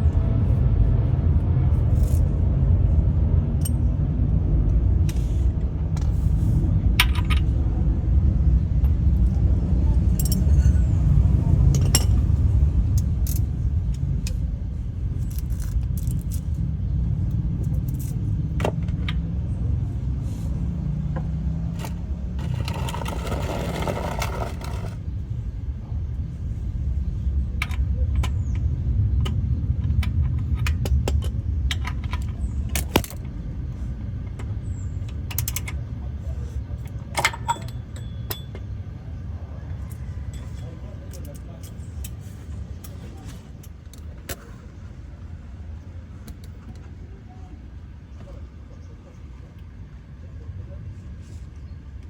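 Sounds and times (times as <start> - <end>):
steady low rumble: 0.0 - 52.0
light metallic clinks and taps: 37.2 - 38.8.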